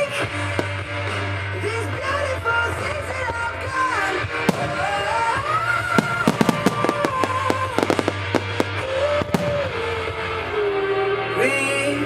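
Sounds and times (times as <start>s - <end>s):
fireworks bangs and crackles: 0.0s - 1.2s, 3.3s - 10.2s
pop song with singing: 0.0s - 12.0s.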